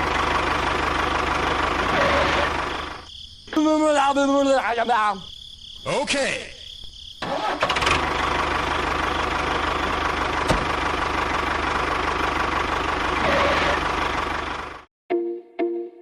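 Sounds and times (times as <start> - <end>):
small engine running: 0.0 - 3.0, 7.3 - 14.9.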